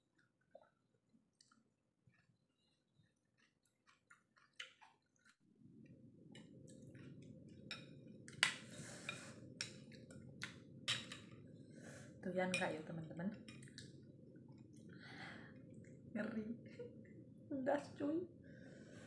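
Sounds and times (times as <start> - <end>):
mouth chewing wet smacks: 1.4 - 5.4
low steady hum: 5.3 - 19.0.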